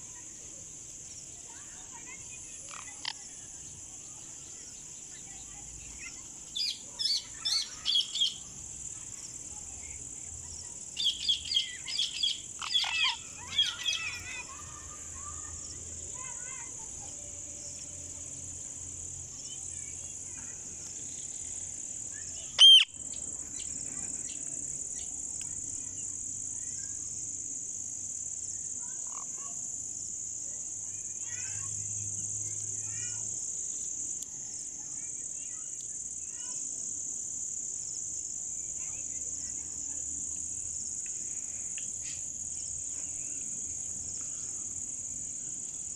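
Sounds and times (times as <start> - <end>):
parrot shrill calls: 12.6 - 14.2, 22.6 - 22.9.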